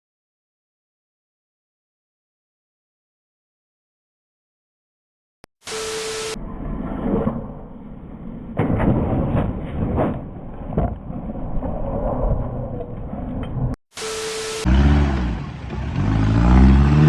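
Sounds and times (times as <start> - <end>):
low vehicle rumble: 14.7 - 17.0.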